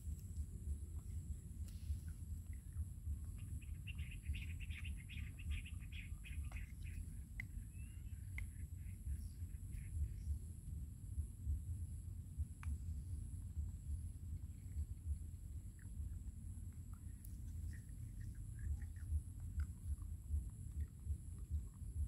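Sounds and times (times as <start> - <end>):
low steady rumble: 0.0 - 22.0
small bird twittering: 3.2 - 10.4.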